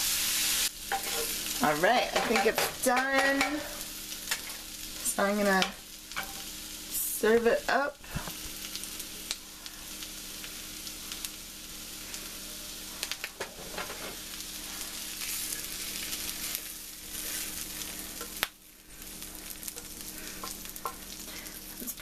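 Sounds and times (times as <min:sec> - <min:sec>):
food sizzling in a skillet: 0:00.0 - 0:22.0
utensil scraping a pan: 0:00.9 - 0:04.6.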